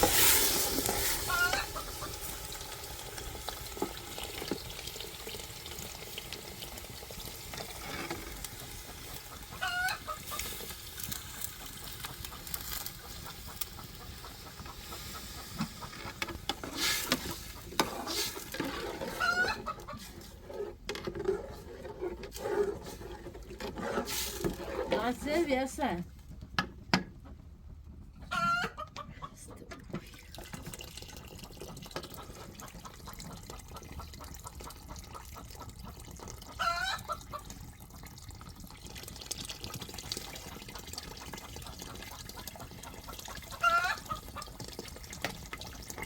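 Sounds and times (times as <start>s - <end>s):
chickens clucking: 0.9s - 2.4s, 8.5s - 26.0s, 27.1s - 30.0s, 32.1s - 37.6s, 41.4s - 44.6s.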